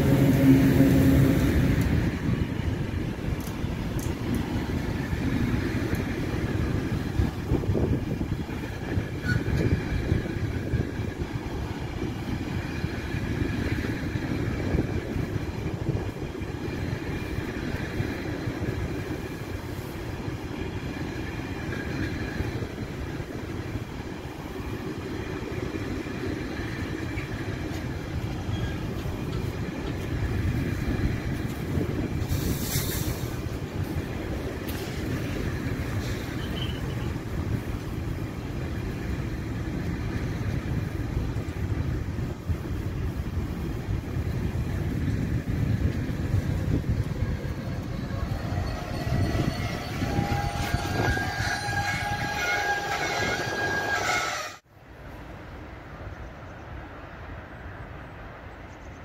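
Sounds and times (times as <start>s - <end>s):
train wheels rumbling on rail: 0.0s - 59.0s
train brakes squealing: 9.0s - 9.7s, 28.4s - 29.0s, 35.9s - 37.3s, 47.4s - 54.6s.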